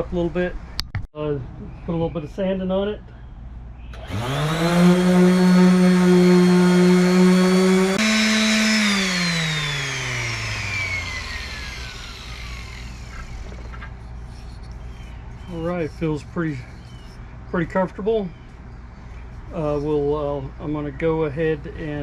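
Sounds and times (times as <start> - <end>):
electric sander motor: 4.0 - 13.9.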